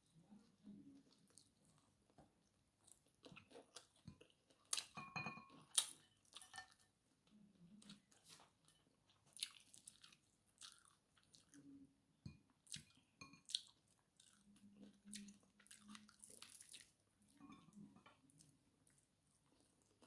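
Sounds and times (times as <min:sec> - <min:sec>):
person chewing fried food: 0:01.0 - 0:05.0, 0:07.8 - 0:11.7, 0:12.5 - 0:20.0.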